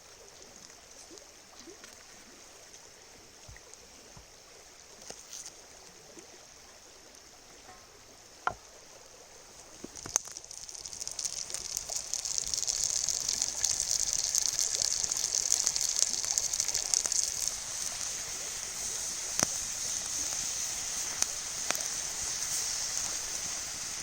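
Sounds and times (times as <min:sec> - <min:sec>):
vegetables sizzling in oil: 0:09.5 - 0:24.0.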